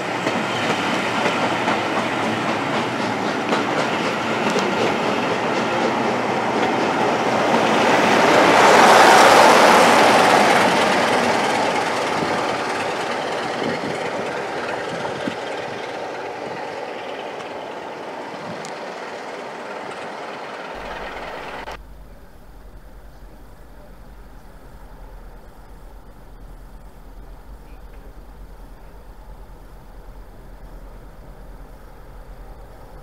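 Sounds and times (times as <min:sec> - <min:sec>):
passenger train rolling past: 0:00.0 - 0:33.0
low hum: 0:19.8 - 0:33.0.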